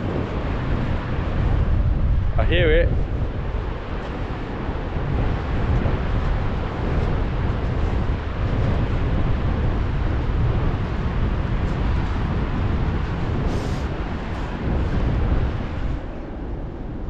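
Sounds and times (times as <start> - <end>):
helicopter rotors and engines: 0.0 - 17.0
wind on microphone: 0.0 - 17.0.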